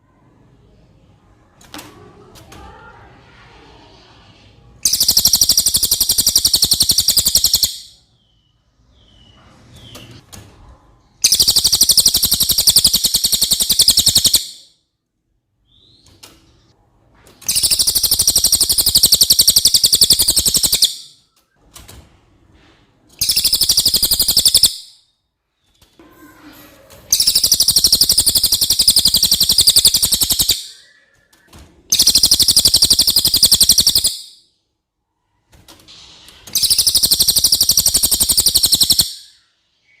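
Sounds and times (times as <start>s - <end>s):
bird singing high rapid trills: 4.8s - 9.2s, 11.2s - 14.7s, 17.5s - 21.2s, 23.2s - 25.0s, 27.1s - 31.2s, 31.9s - 34.4s, 36.6s - 40.0s.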